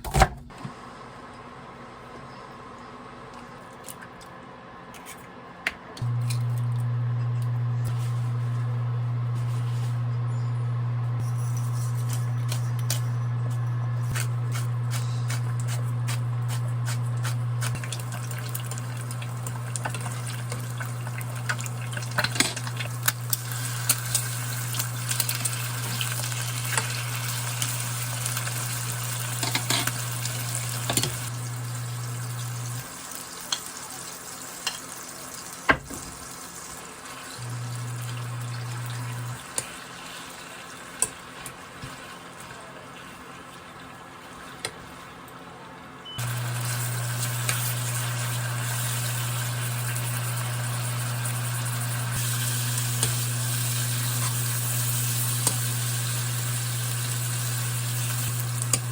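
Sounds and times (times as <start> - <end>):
steady low hum: 6.0 - 25.4
utensils clinking on cookware: 11.2 - 13.8, 29.3 - 30.1
food sizzling in a frying pan: 16.8 - 42.8, 46.2 - 58.9.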